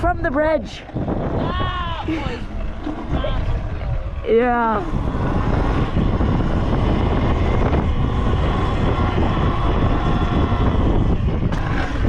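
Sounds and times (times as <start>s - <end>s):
wind buffeting microphone: 0.0s - 12.0s
pit bike engine running: 2.4s - 12.0s.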